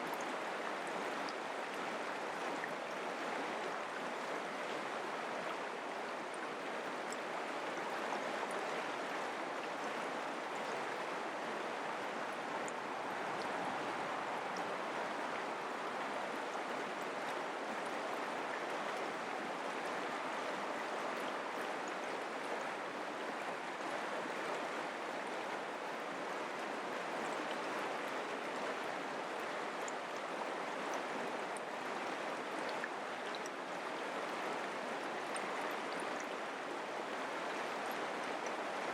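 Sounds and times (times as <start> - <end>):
creek water flowing over rocks: 0.0 - 38.9.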